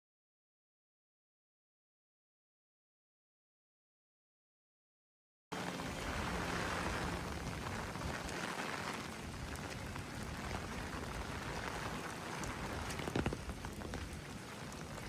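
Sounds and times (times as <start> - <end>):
heavy rain hissing: 5.6 - 15.0
rain drops ticking: 5.6 - 15.0
strong wind rumbling: 5.7 - 15.0.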